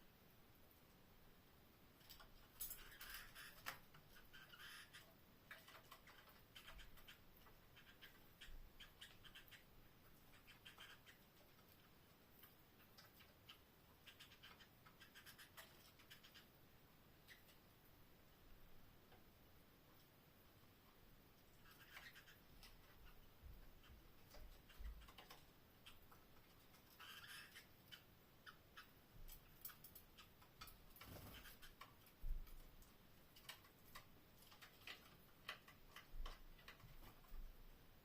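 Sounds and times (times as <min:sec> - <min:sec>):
soft scratchy sounds: 0:00.0 - 0:38.0
birds clicking and tapping in cage: 0:02.0 - 0:16.4, 0:21.6 - 0:37.5.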